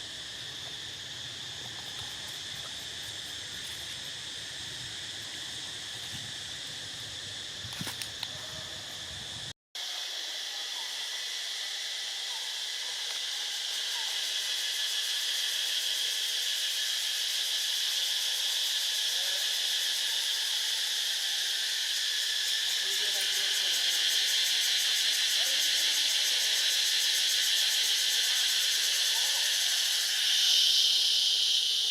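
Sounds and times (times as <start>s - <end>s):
insect chorus droning: 0.0s - 31.9s.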